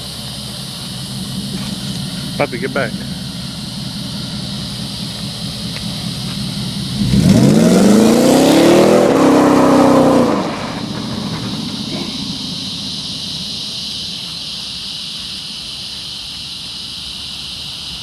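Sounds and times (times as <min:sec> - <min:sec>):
pickup engine idling and revving: 0:00.0 - 0:17.8.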